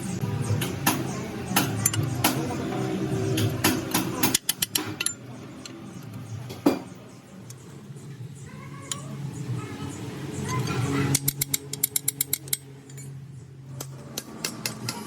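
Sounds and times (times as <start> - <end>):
metal tools clinking and knocking: 3.4 - 6.9, 10.5 - 13.2.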